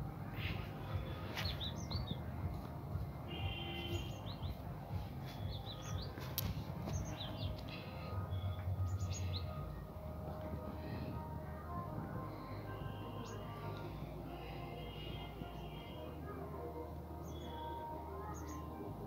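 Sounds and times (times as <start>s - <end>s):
low background rumble: 0.0s - 18.2s
small birds chirping: 0.2s - 11.3s, 17.2s - 18.8s.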